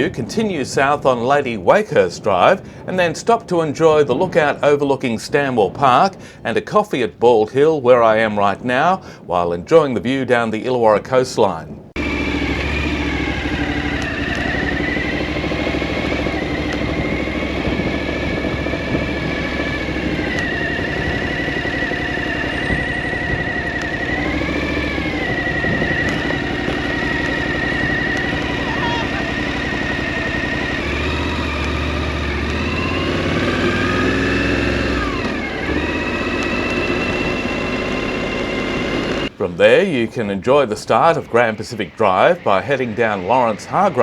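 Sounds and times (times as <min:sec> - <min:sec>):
high whine: 0:11.7 - 0:44.0
motorcycle engine running: 0:12.0 - 0:39.3.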